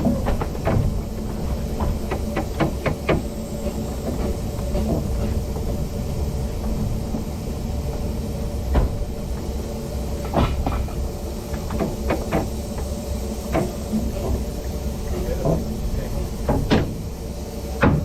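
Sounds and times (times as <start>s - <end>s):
train wheels rumbling on track: 0.0s - 18.0s
sharp knocks and clanks: 10.2s - 12.9s, 16.4s - 17.0s, 17.8s - 18.0s.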